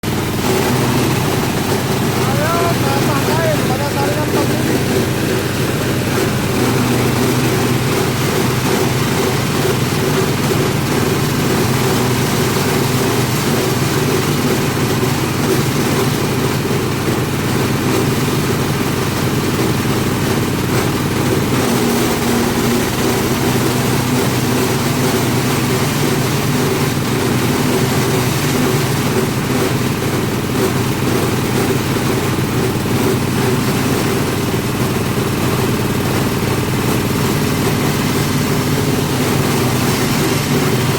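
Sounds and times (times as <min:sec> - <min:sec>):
shredding machine humming: 0:00.0 - 0:40.9.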